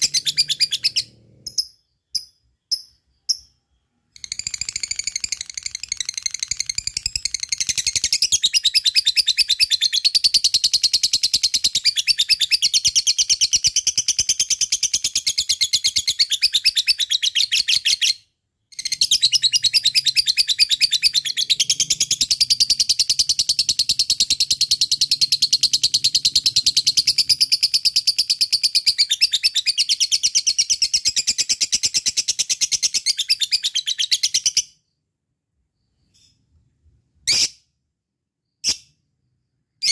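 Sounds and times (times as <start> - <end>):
lovebird chattering trill: 0.0 - 3.6.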